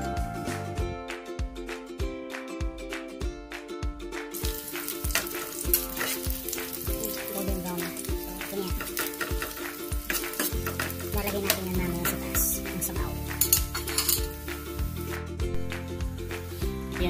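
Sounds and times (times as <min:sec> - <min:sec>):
onions sizzling in oil: 0:04.4 - 0:17.0
spatula clicking against pan: 0:04.8 - 0:12.5.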